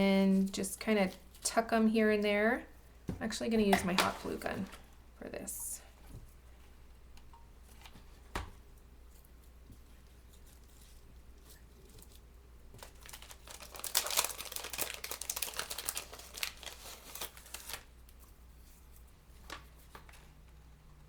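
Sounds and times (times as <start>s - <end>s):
paper crinkling and rustling: 9.1s - 20.4s.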